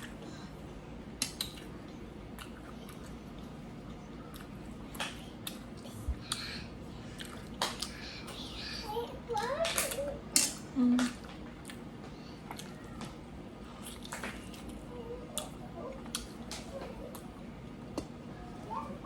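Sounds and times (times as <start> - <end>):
chewing: 1.2 - 8.0, 9.8 - 13.1, 13.7 - 17.4.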